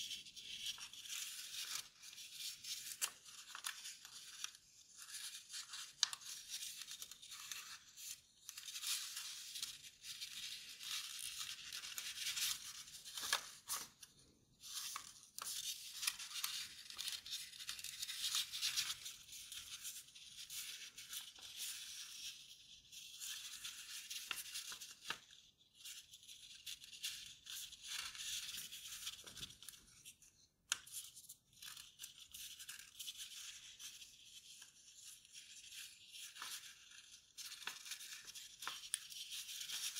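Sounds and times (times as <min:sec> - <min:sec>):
paper rustling and crinkling: 0:00.1 - 0:22.2, 0:23.2 - 0:30.2, 0:30.8 - 0:39.9
sharp clicks of paper folds: 0:00.6 - 0:07.8, 0:08.4 - 0:19.2, 0:35.7 - 0:39.9.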